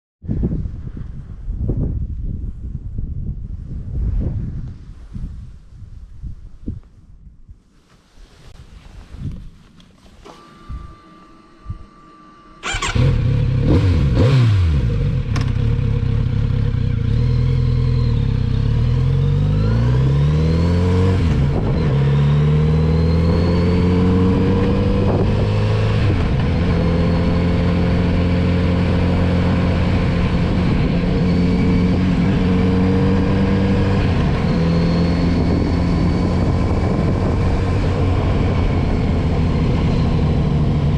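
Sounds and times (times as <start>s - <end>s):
motorcycle engine revving: 12.6s - 40.9s.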